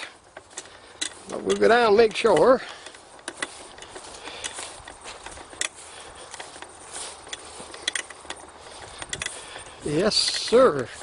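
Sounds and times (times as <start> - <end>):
light footsteps: 0.0 - 11.0.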